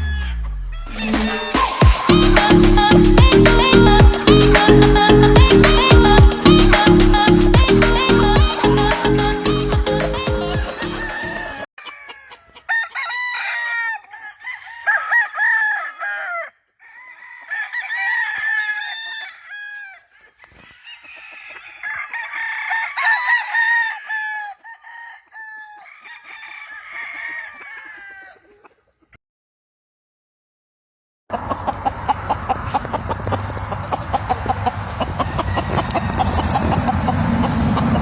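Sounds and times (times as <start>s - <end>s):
chickens clucking: 0.0s - 13.0s, 31.3s - 38.0s
roosters crowing: 0.0s - 28.7s, 31.3s - 38.0s.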